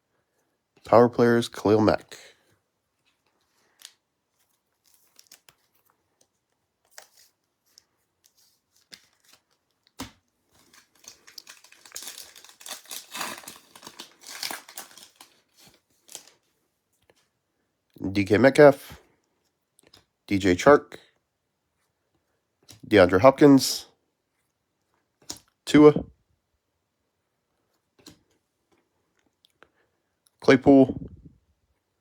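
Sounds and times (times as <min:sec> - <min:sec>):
card pack wrapper tearing and crinkling: 0:03.8 - 0:05.9, 0:06.8 - 0:16.3
small clicks and taps of cards: 0:19.8 - 0:20.1.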